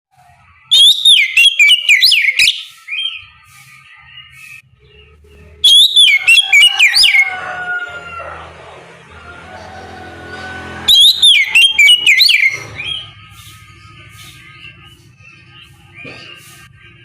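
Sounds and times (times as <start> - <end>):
magpie-robin singing: 0.2 - 7.4, 10.8 - 17.0
bird twittering: 0.6 - 7.4, 10.8 - 17.0.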